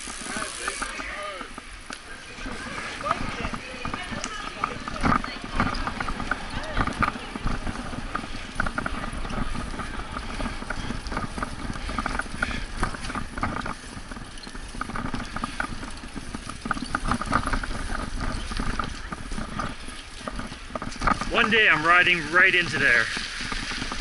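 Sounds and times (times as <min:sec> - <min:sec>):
bicycle road noise: 0:00.0 - 0:24.0
wind on microphone: 0:02.4 - 0:21.6.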